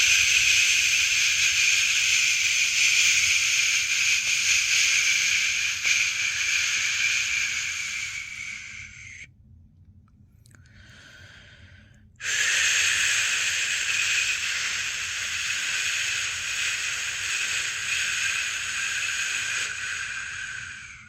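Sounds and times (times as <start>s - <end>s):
person shushing: 0.0s - 9.3s, 12.2s - 21.0s.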